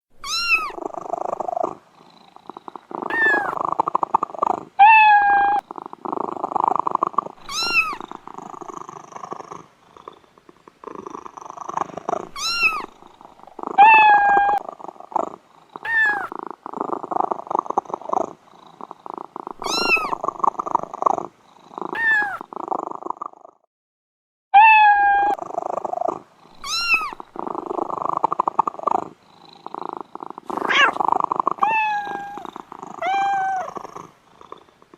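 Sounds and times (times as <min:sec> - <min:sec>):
cat mewing: 0:00.2 - 0:00.8, 0:03.0 - 0:03.6, 0:04.8 - 0:05.6, 0:07.4 - 0:08.1, 0:12.4 - 0:12.9, 0:13.7 - 0:14.6, 0:15.8 - 0:16.4, 0:19.6 - 0:20.2, 0:21.9 - 0:22.5, 0:24.6 - 0:25.4, 0:26.6 - 0:27.2, 0:30.5 - 0:31.0, 0:31.6 - 0:33.8
cat purring: 0:00.2 - 0:23.7, 0:25.3 - 0:34.9.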